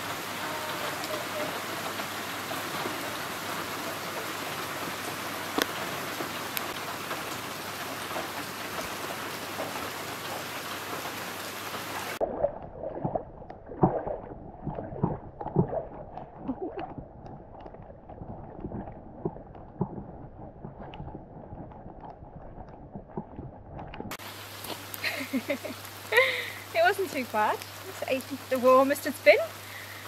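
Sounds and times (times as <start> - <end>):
heavy rain on water: 0.0 - 12.2, 16.4 - 16.9, 24.1 - 30.0.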